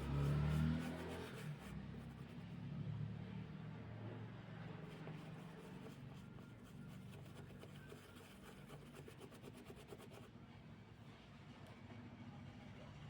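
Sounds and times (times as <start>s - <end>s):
faint rapid scratching: 0.0s - 2.6s, 4.8s - 10.3s.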